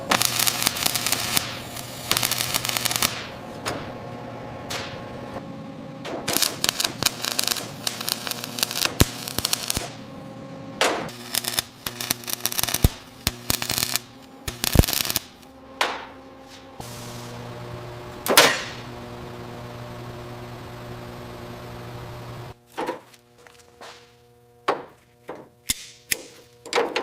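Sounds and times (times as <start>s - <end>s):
steady low hum: 0.0s - 25.8s.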